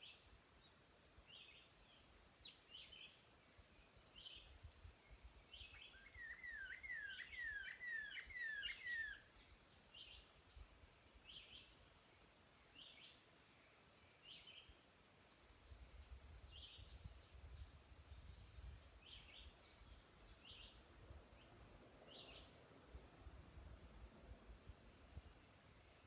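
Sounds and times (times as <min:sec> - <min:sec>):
low wind rumble: 0:15.6 - 0:25.9.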